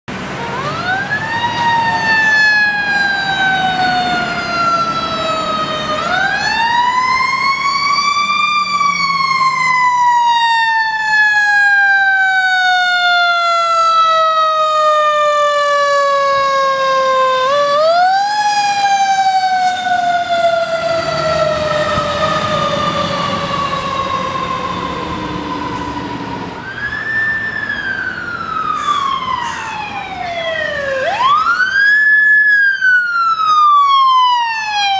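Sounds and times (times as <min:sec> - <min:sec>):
fire engine siren wailing: 0:00.1 - 0:34.9.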